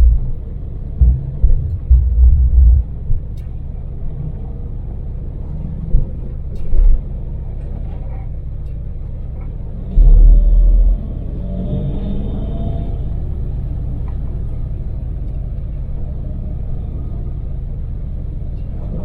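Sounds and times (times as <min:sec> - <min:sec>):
deep low buffeting: 0:00.0 - 0:05.0, 0:09.9 - 0:11.6
van engine and road rumble: 0:00.0 - 0:19.0.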